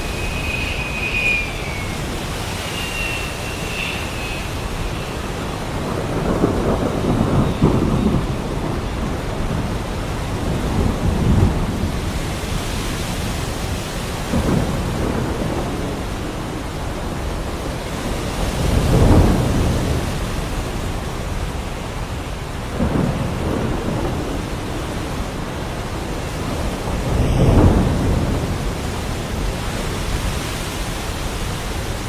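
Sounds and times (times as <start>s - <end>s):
thin high whistling tone: 0.0s - 5.9s
heavy rain falling: 0.0s - 32.0s
thunder rolling: 0.0s - 32.0s.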